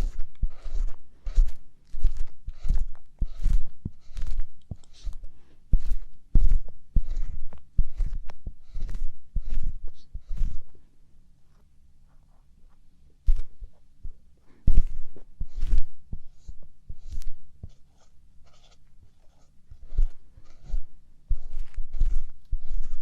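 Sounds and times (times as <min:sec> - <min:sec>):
ear pick scraping in ear: 0:00.0 - 0:05.2, 0:05.8 - 0:10.7, 0:14.7 - 0:17.8, 0:19.8 - 0:23.0.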